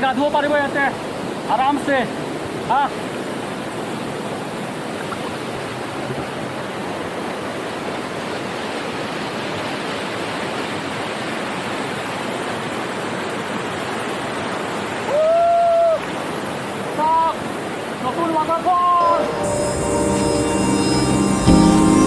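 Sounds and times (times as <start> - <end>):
water falling at waterfall: 0.0 - 19.2
loud held tone: 18.8 - 22.0.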